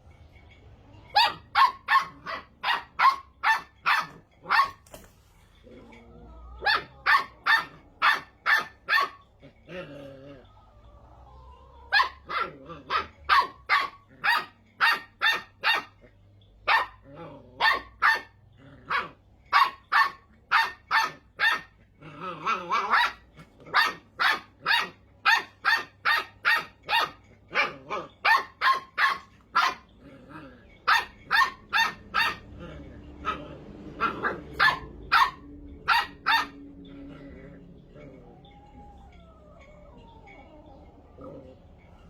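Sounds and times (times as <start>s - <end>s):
puppy barking: 1.1s - 5.0s, 6.4s - 9.3s, 11.8s - 30.0s, 30.8s - 38.0s.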